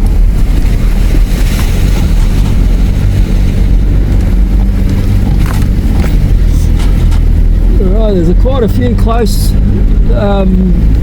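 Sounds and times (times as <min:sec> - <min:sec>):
suspension knocks over bumps: 0:00.0 - 0:07.8
engine and tyre rumble: 0:00.0 - 0:11.0.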